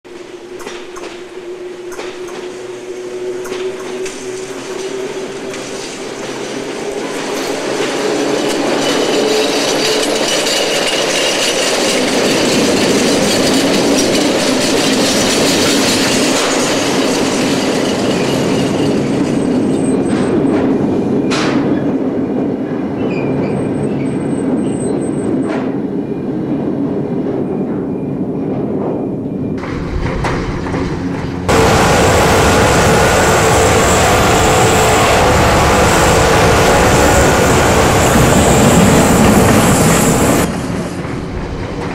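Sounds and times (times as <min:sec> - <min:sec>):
train rolling past: 0:00.1 - 0:41.9
train wheels squealing: 0:00.6 - 0:20.6, 0:22.9 - 0:26.3, 0:31.5 - 0:41.0.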